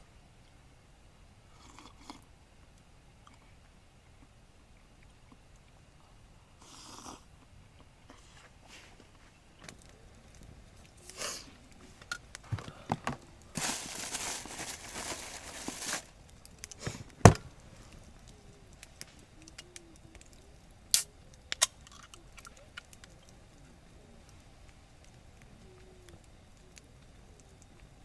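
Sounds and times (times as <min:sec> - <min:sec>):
rustling: 0:13.5 - 0:16.2.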